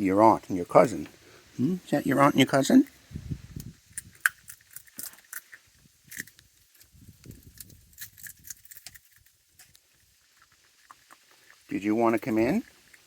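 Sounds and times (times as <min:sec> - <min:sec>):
peanut shells cracking: 0:03.6 - 0:11.7.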